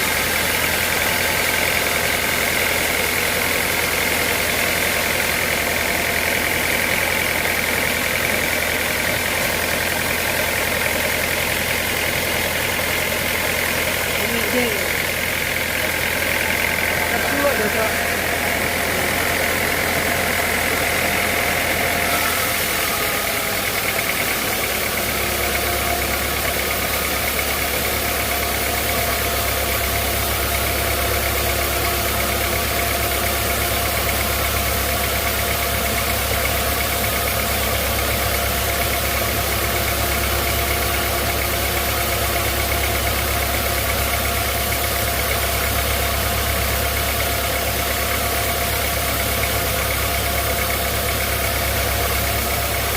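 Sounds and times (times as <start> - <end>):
sawmill machinery humming: 0.0 - 52.9
high machine whine: 14.2 - 25.8.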